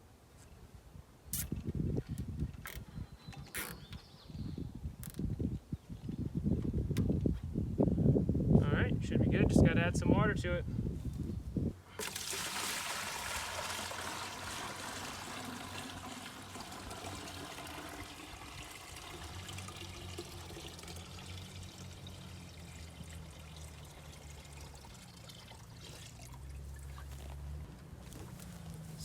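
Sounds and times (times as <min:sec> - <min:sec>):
water pouring into plastic bucket: 0:12.0 - 0:27.2.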